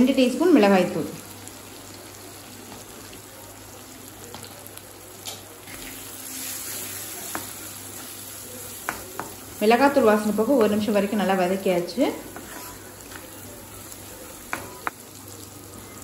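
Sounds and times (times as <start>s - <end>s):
onions sizzling in oil: 0.0s - 16.0s
wooden spatula scraping a pan: 12.2s - 13.4s.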